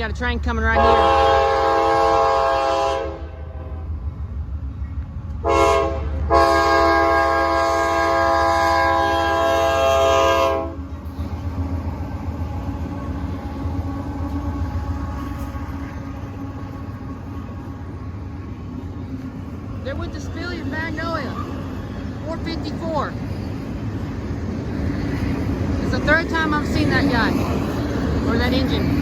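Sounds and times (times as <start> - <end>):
low rumble of train passing: 0.0 - 29.0
locomotive horn blasts: 0.7 - 3.8, 5.4 - 10.8.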